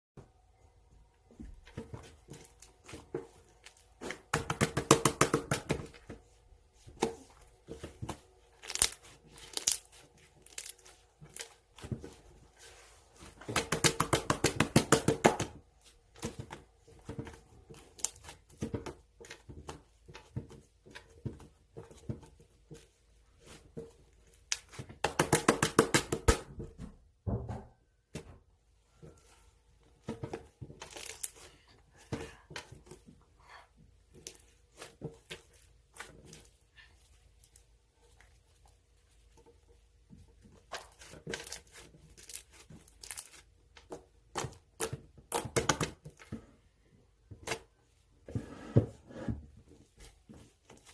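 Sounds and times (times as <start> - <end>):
candy wrappers crinkling: 8.5 - 11.8, 30.8 - 31.4, 41.2 - 43.4.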